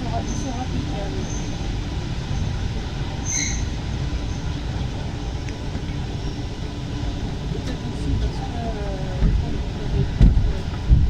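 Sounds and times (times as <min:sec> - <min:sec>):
metro train rumbling in tunnel: 0:00.0 - 0:11.0
high squeal: 0:03.2 - 0:04.5.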